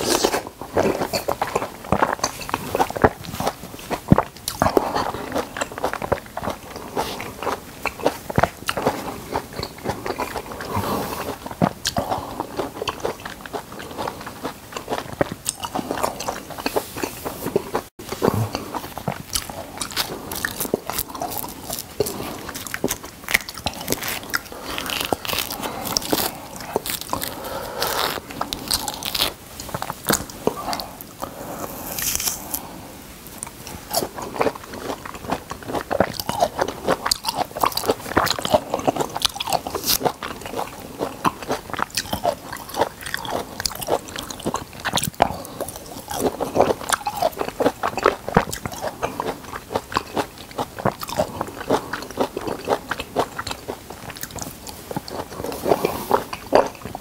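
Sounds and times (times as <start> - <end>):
chewing and crunching food: 0.0 - 57.0
orange peel tearing: 31.7 - 32.6.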